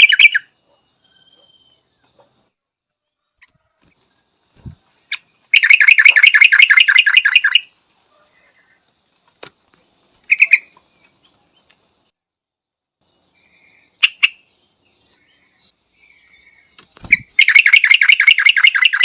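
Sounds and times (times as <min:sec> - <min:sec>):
bird chattering call: 0:00.0 - 0:00.5, 0:05.1 - 0:07.7, 0:10.3 - 0:10.8, 0:17.0 - 0:19.0.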